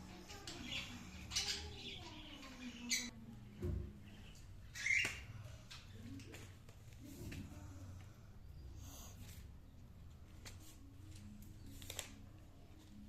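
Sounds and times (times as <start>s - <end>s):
lovebirds squawking and chirping: 0.3s - 3.1s, 4.2s - 5.3s.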